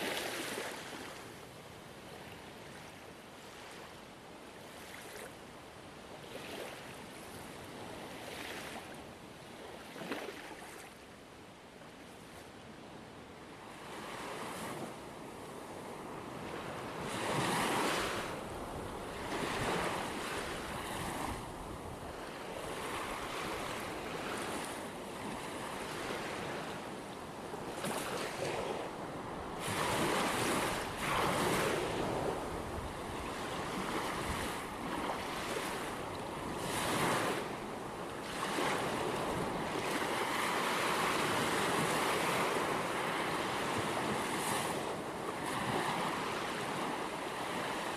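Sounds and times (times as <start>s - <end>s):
ocean waves breaking on shore: 0.0s - 11.2s, 11.8s - 47.9s
wind noise on microphone: 15.9s - 26.8s, 27.6s - 37.5s.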